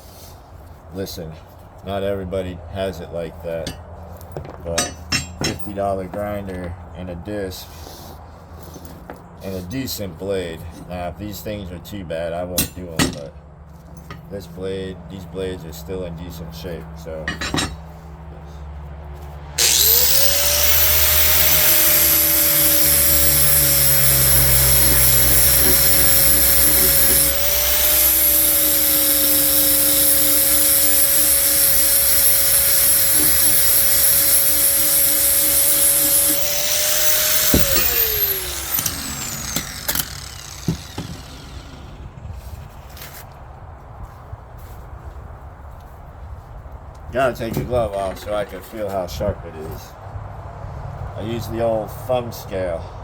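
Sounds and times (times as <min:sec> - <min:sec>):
angle grinder grinding steel: 0:19.6 - 0:42.7
grinder winding down: 0:19.6 - 0:42.7.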